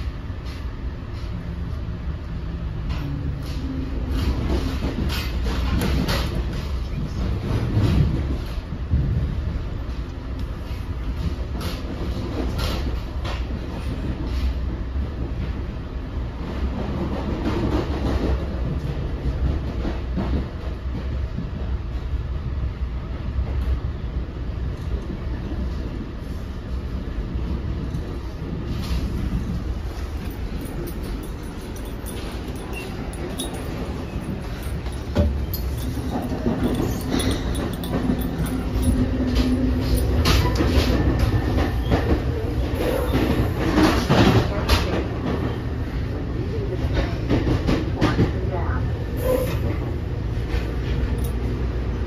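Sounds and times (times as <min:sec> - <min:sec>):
train rumbling: 0:00.0 - 0:52.0
wheels clacking over rail joints: 0:28.7 - 0:45.1.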